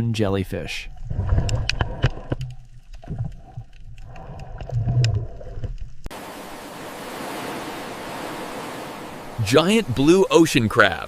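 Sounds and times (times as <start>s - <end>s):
underwater rumbling and gurgling: 0.8s - 6.9s
ocean surf hiss: 6.1s - 10.8s.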